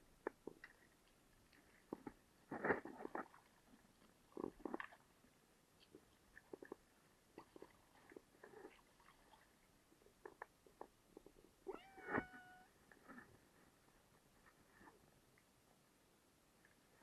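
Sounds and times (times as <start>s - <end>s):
cat meowing: 11.7s - 12.7s.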